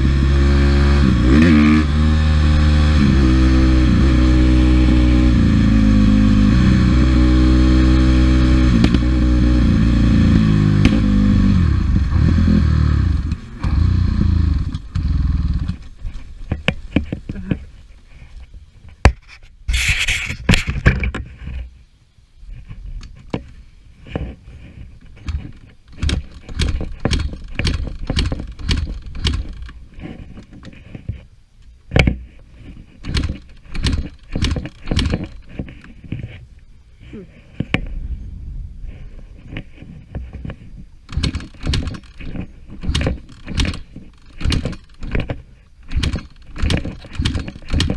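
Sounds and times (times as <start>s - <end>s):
dirt bike engine running: 0.0s - 17.6s, 26.0s - 29.8s, 38.9s - 47.9s
clicks and knocks: 25.1s - 31.2s, 39.4s - 47.9s
brief rushing noise: 37.8s - 39.8s.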